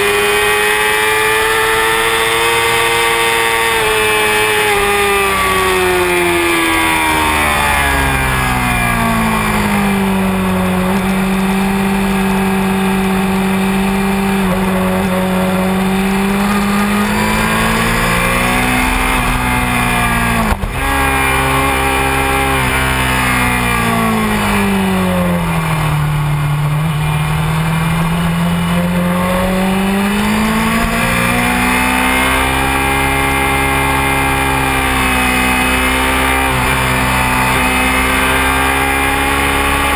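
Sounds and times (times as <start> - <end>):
sport-bike engine at speed: 0.0 - 39.9.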